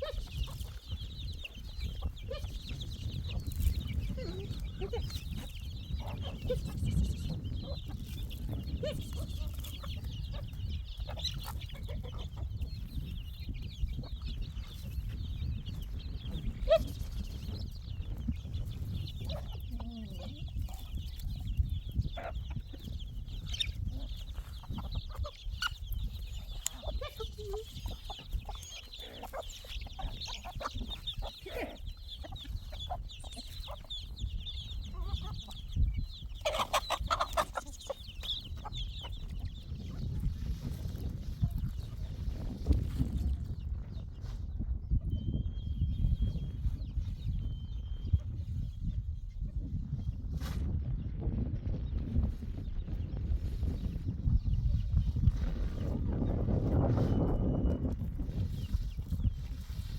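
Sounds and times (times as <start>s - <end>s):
chickens clucking: 0.0s - 45.2s.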